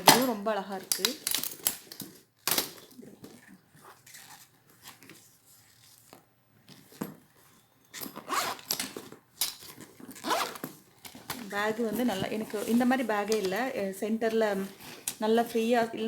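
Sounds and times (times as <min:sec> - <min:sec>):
bag handling noises: 0:00.0 - 0:16.0
zipper being pulled: 0:03.3 - 0:06.0, 0:07.9 - 0:10.7.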